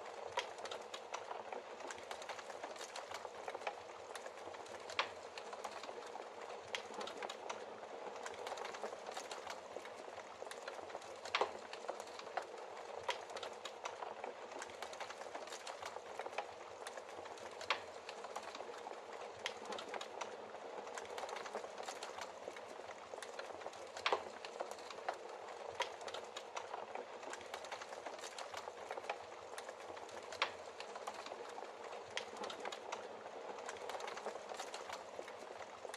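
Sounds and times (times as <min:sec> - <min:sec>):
logs crackling in fireplace: 0:00.0 - 0:35.9.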